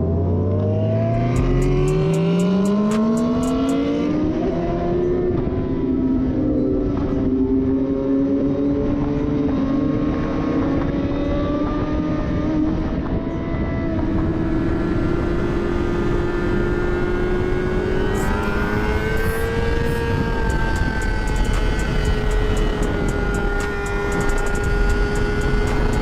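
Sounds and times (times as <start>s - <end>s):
wind and road noise: 0.0s - 26.0s
motorcycle exhaust at high revs: 1.1s - 5.4s, 13.8s - 26.0s.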